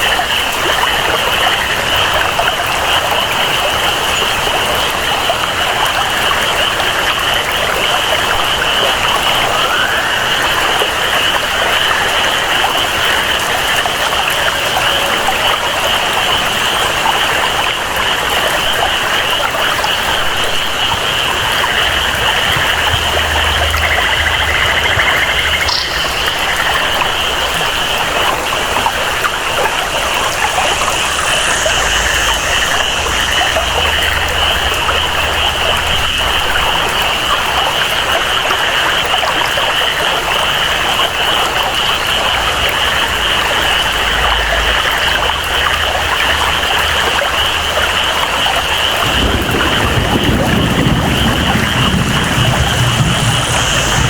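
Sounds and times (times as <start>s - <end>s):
flowing water: 0.0s - 54.0s
rainfall: 0.0s - 54.0s
high-pitched jungle chorus: 20.7s - 35.4s, 51.3s - 54.0s.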